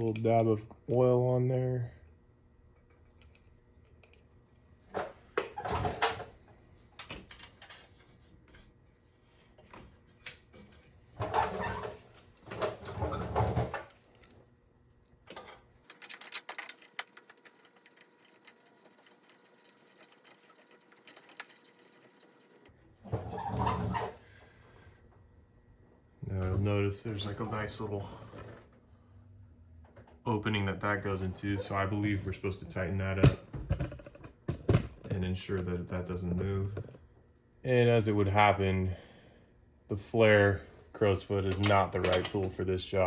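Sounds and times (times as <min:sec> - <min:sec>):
metal fittings clinking and rattling: 0:15.8 - 0:22.7.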